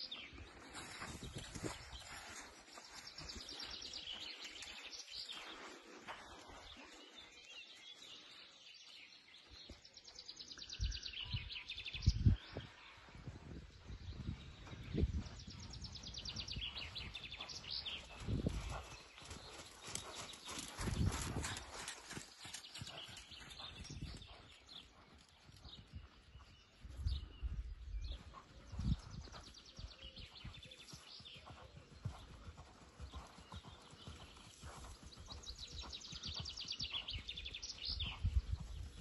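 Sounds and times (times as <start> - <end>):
outdoor background noise: 0.0 - 7.5, 16.2 - 26.2.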